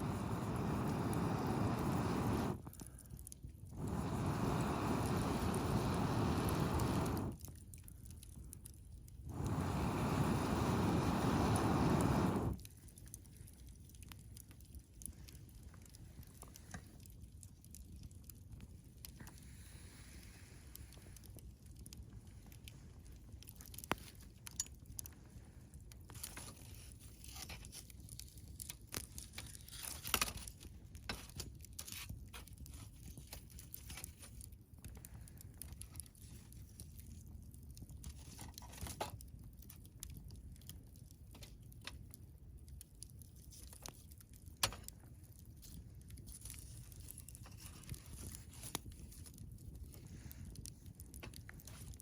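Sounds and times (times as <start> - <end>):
sharp fire pops: 0.0 - 16.9
wood crackling in campfire: 0.0 - 52.0.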